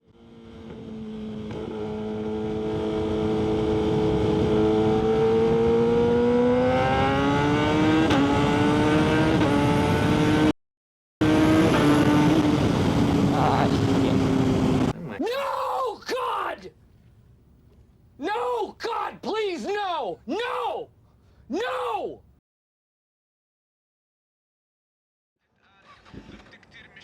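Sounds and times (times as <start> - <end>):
motorcycle engine running: 11.2 - 14.9.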